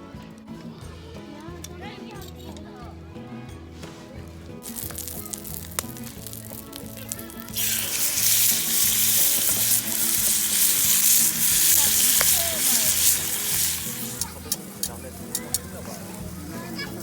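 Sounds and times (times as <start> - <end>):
loud sizzling hiss: 4.6 - 17.0.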